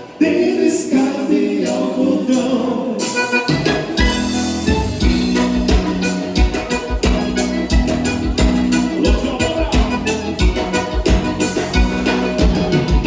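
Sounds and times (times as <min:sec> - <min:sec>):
dance band music: 0:01.7 - 0:13.0
button accordion: 0:03.0 - 0:13.0.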